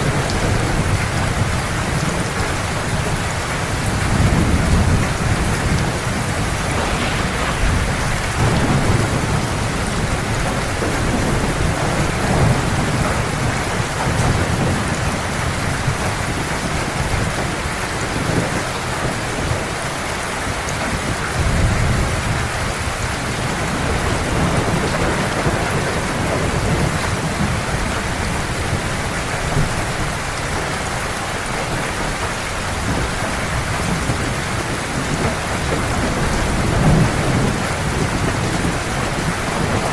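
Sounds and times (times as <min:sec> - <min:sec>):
heavy rain falling: 0:00.0 - 0:39.9
rolling thunder rumbles: 0:04.0 - 0:14.7.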